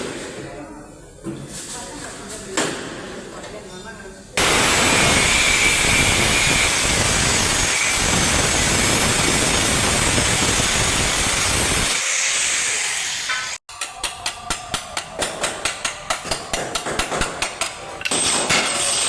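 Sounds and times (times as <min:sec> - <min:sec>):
air tool hissing: 0:04.4 - 0:13.6.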